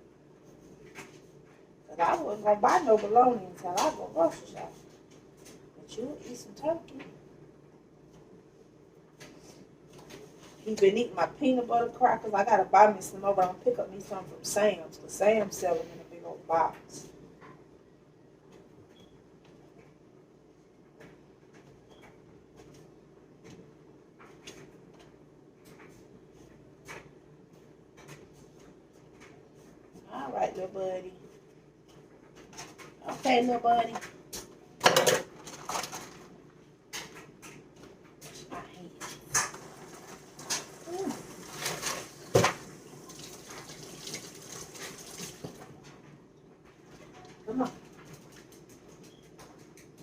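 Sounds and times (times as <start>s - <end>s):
faint kitchen clicks and knocks: 18.4s - 30.1s, 31.2s - 42.8s, 45.4s - 50.0s.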